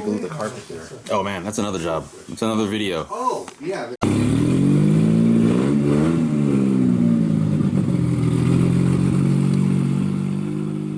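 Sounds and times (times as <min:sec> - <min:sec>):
car engine running and revving: 0:04.0 - 0:10.9.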